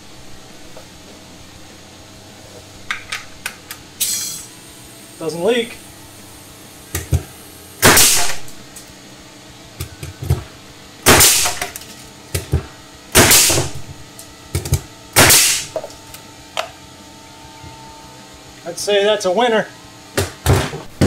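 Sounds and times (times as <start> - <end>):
nail gun firing bangs: 7.8 - 8.4, 11.0 - 11.7, 13.1 - 13.8, 15.2 - 15.8.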